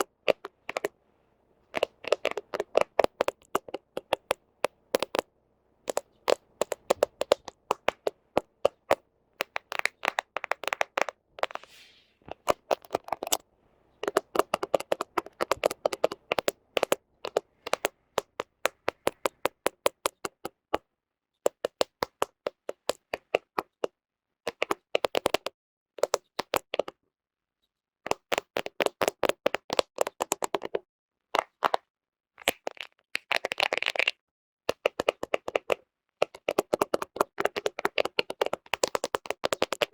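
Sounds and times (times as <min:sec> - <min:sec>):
fingernails tapping on lens: 0:00.0 - 0:01.0, 0:01.7 - 0:13.4, 0:14.0 - 0:20.5, 0:34.7 - 0:39.9.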